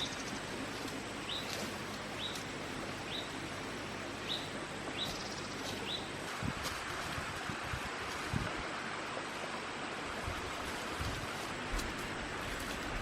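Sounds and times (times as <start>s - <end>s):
bird chirping: 0.0s - 3.5s, 4.2s - 6.2s
forest background hiss: 0.0s - 13.0s.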